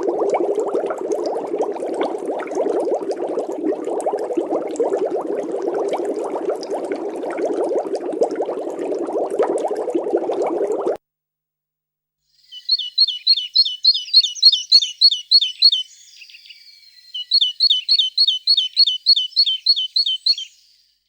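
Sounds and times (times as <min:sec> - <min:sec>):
songbird singing: 0:12.4 - 0:21.0.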